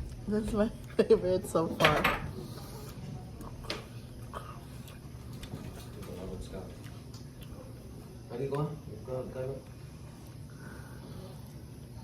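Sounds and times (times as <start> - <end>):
person chewing food: 2.6 - 7.9.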